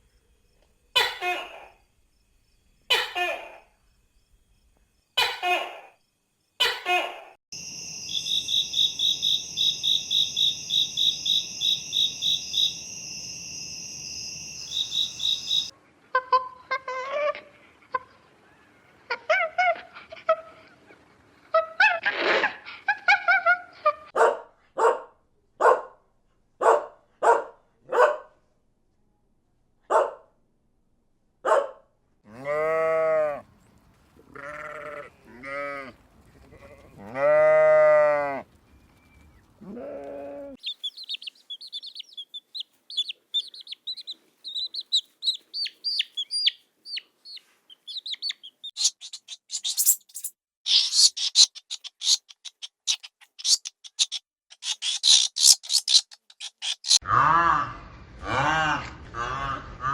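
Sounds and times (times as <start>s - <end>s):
fast high chirping: 7.6s - 15.7s, 40.6s - 57.0s
young animals bleating: 32.3s - 33.4s, 34.3s - 38.4s, 39.6s - 40.6s.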